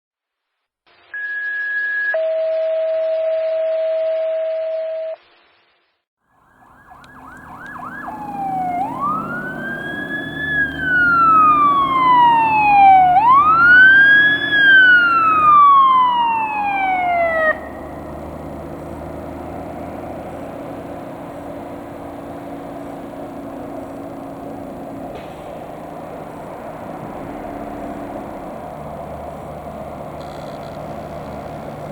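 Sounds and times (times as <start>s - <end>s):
siren blips: 6.4s - 19.9s
mechanical siren wailing: 6.4s - 31.9s
fire engine rumble: 6.7s - 31.9s.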